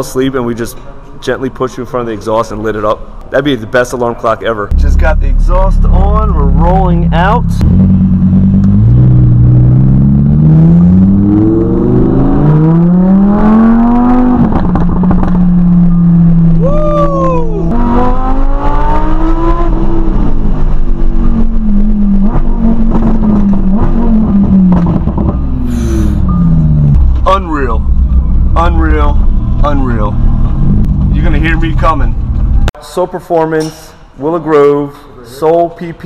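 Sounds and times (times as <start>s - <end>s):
sports car engine revving: 4.7s - 16.7s, 17.6s - 32.7s.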